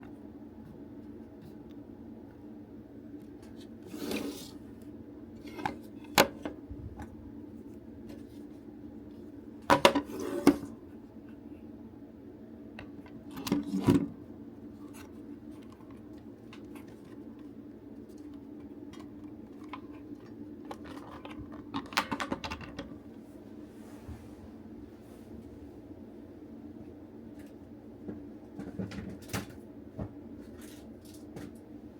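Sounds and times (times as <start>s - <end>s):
steady low hum: 0.0s - 31.9s
plastic parts clicking and clattering: 18.9s - 23.0s.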